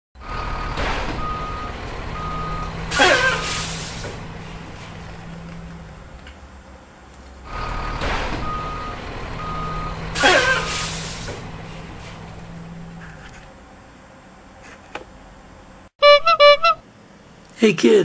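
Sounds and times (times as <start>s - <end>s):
low engine hum: 0.2s - 15.9s
reversing alarm beeping: 0.3s - 3.7s, 7.8s - 10.7s.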